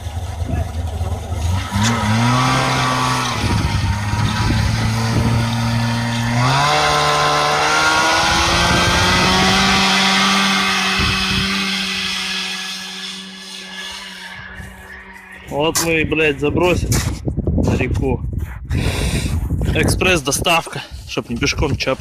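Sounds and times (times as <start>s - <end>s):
engine pulling away under load: 0.0s - 16.2s.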